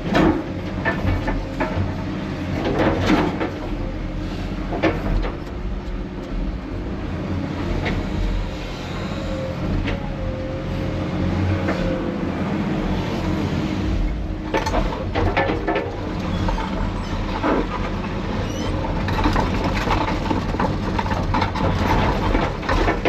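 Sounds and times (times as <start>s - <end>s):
clanks and knocks: 0.0s - 3.7s, 4.7s - 6.4s, 14.4s - 23.0s
heavy diesel engine running: 0.0s - 23.0s.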